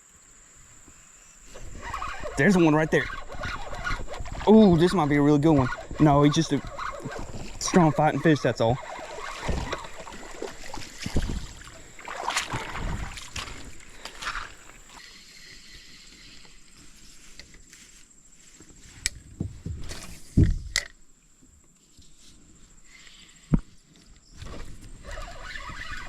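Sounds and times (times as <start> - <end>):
water splashing around kayak: 1.5 - 15.0.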